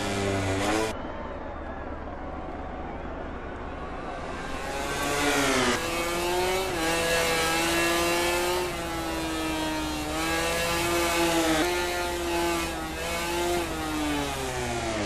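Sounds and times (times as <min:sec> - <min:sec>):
racing motorcycle engine at high revs: 0:00.0 - 0:01.0, 0:04.4 - 0:15.0.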